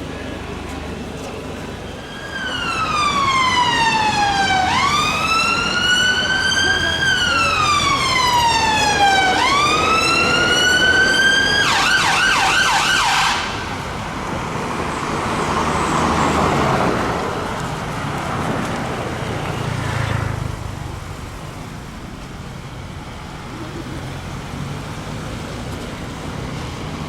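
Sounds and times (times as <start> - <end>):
passing traffic noise: 0.0 - 27.0
emergency siren wailing and yelping: 1.9 - 13.7.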